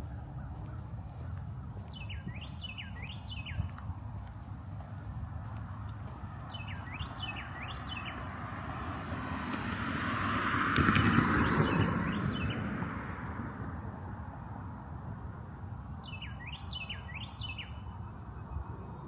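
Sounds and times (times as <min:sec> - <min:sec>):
songbird singing upward notes: 0:00.0 - 0:03.9, 0:06.0 - 0:08.3, 0:15.9 - 0:19.0.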